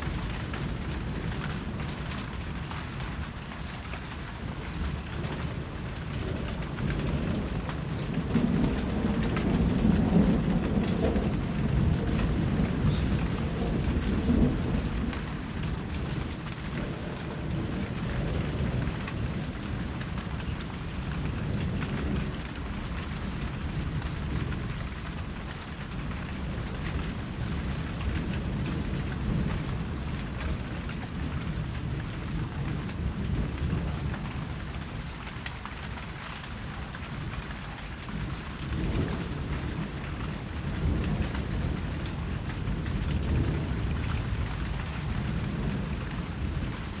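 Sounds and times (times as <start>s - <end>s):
steady rain falling: 0.0s - 47.0s
thunder rolling: 5.0s - 23.0s, 38.1s - 47.0s.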